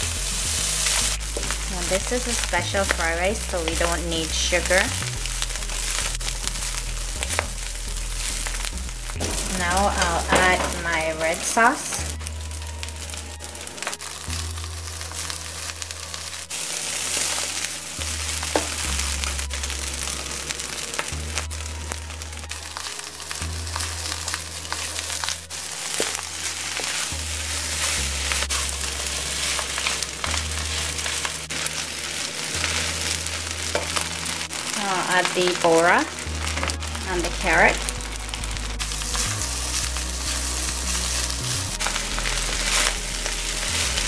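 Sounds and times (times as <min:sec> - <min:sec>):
background music with bass: 0:00.0 - 0:44.0
rice sizzling in a wok: 0:00.0 - 0:44.0
spatula scraping a pan: 0:22.6 - 0:34.6.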